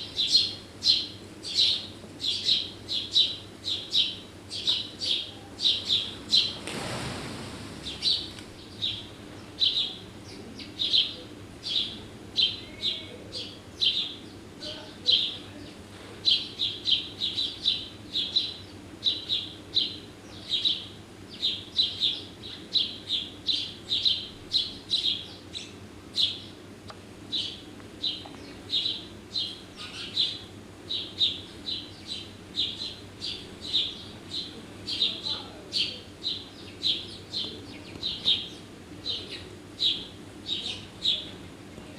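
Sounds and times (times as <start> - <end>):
small bird chirping: 0.2 - 6.7, 7.8 - 15.5, 27.3 - 41.3.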